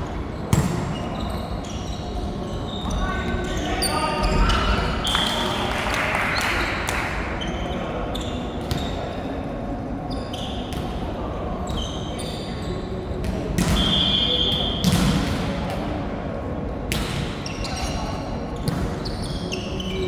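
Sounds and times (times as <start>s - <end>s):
ball thuds in echoing hall: 0.0s - 1.4s, 13.2s - 16.1s, 16.8s - 17.5s, 18.6s - 19.2s
murmur of voices: 0.0s - 20.0s
shoe soles squeaking on floor: 0.4s - 5.2s, 7.4s - 9.3s, 11.6s - 12.9s, 17.4s - 20.0s.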